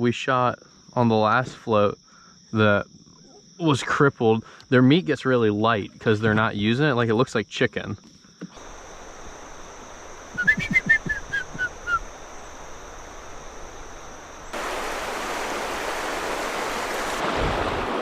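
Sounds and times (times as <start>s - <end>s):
descending chirps: 8.6s - 17.2s
river water running: 8.6s - 18.0s.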